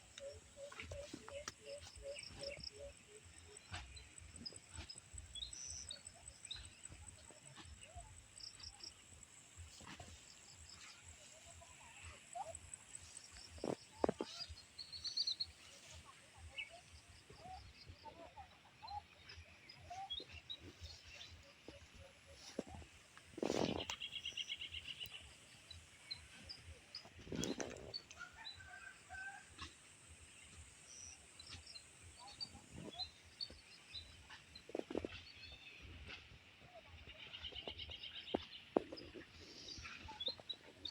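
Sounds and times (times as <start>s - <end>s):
faint birds chirping: 30.2s - 40.9s.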